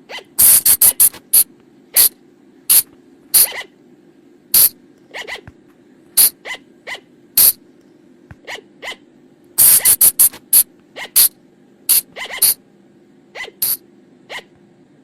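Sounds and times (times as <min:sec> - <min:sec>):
steady low hum: 0:00.0 - 0:15.0
flying lemur calling: 0:03.4 - 0:03.7, 0:11.0 - 0:11.3, 0:11.9 - 0:12.6, 0:13.4 - 0:14.5.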